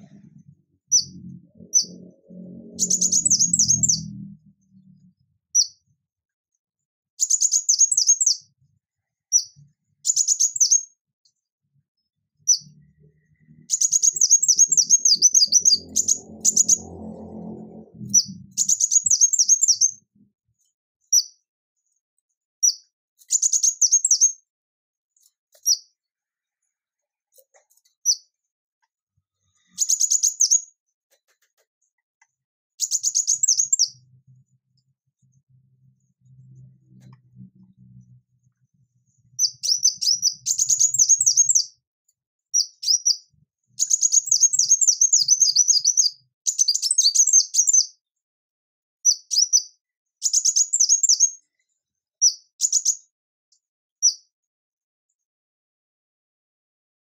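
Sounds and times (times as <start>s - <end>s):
sunbird singing notes and trills: 0.9s - 4.8s, 7.2s - 8.5s, 12.4s - 20.1s, 32.8s - 34.0s, 39.4s - 41.8s, 42.6s - 48.0s, 49.1s - 51.4s.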